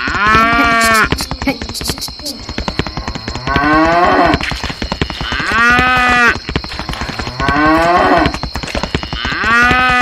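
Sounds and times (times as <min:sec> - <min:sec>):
cow mooing: 0:00.0 - 0:01.2, 0:03.4 - 0:04.4, 0:05.1 - 0:08.4, 0:09.1 - 0:10.0
rapid steady clicking: 0:00.0 - 0:10.0.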